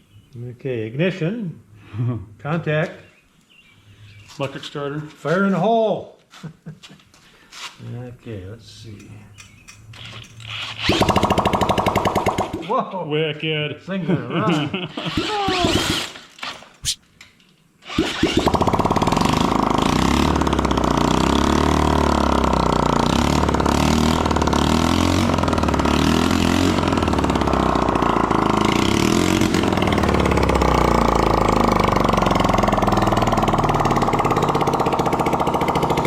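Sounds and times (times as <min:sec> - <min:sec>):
motorcycle engine starting and running: 0:09.7 - 0:12.6, 0:18.0 - 0:36.0.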